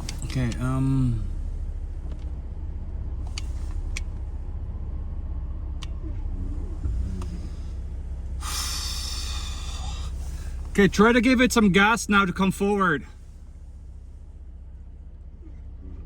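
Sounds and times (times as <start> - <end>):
vehicle engine idling: 0.0 - 16.0
loud hiss: 8.4 - 10.4.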